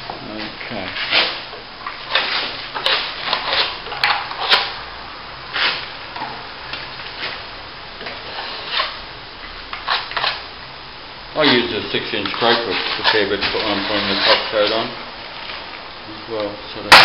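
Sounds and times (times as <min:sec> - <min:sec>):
trowel scraping wet plaster: 0:02.1 - 0:04.7, 0:11.4 - 0:14.8.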